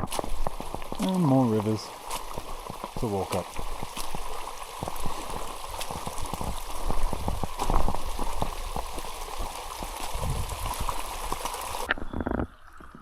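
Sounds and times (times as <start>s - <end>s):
heavy rain: 0.0s - 11.9s
water running along ground: 0.0s - 13.0s.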